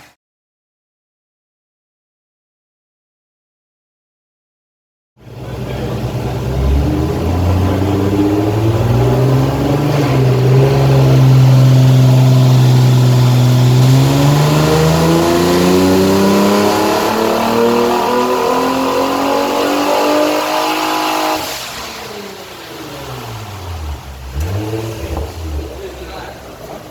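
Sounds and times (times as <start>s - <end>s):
car engine at full throttle: 5.2s - 26.9s.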